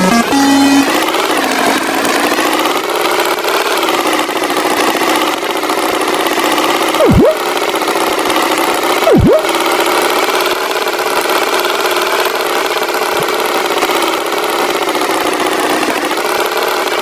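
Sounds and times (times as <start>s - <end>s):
pitch sweep sound effect: 0.0s - 1.0s, 7.0s - 7.5s, 9.0s - 9.6s
tractor engine running: 0.0s - 17.0s.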